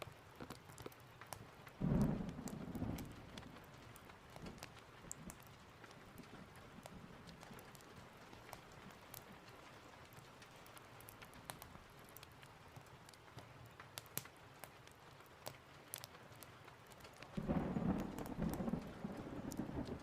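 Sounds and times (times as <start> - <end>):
steady rain: 0.0 - 20.0
wood fire crackling: 0.0 - 20.0
thunder rolling: 1.8 - 5.6, 17.4 - 20.0.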